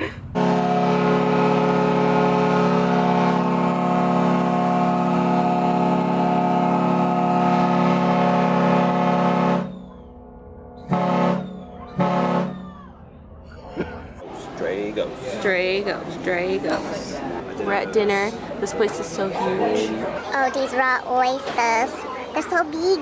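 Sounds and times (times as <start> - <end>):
boat horn blasts: 0.4 - 10.2, 10.8 - 12.7.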